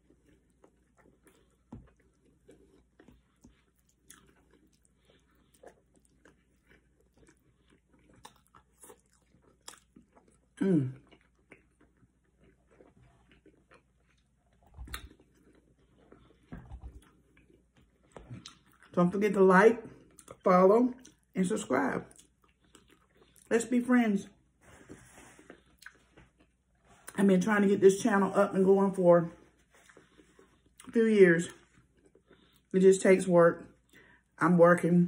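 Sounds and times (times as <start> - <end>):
chewing and mouth smacks: 0.0 - 19.0, 21.0 - 21.3, 22.0 - 23.5, 25.4 - 27.2, 29.6 - 32.7.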